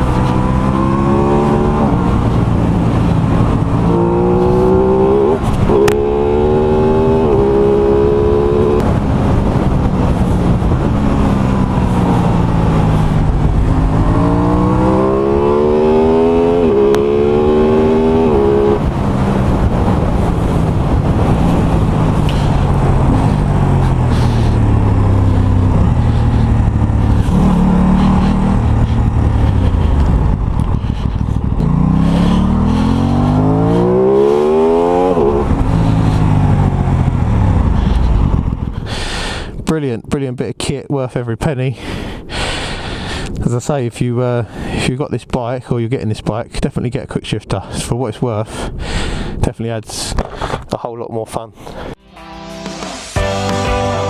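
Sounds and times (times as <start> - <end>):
motorcycle engine accelerating: 0.0 - 38.9, 52.0 - 54.0
wind noise: 0.0 - 39.6.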